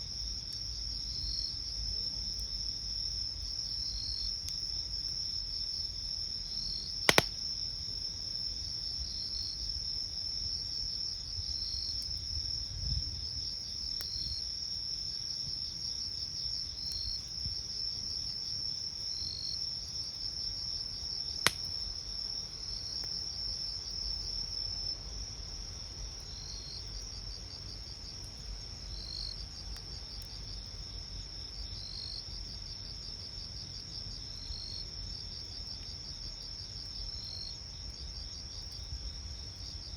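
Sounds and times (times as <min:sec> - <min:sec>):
crickets trilling: 0:00.1 - 0:39.9
campfire popping: 0:07.0 - 0:07.5, 0:21.3 - 0:22.0.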